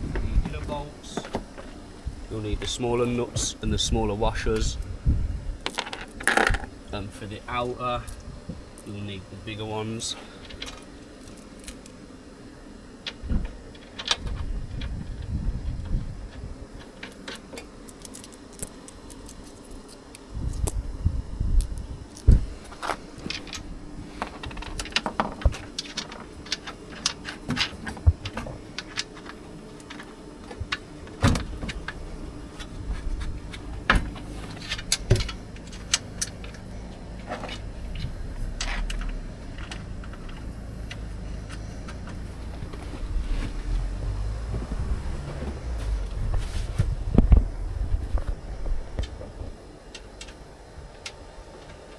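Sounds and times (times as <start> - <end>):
metal nuts and washers clinking: 8.0 - 9.1, 10.4 - 12.0, 16.8 - 20.8, 21.6 - 27.8, 34.0 - 36.6.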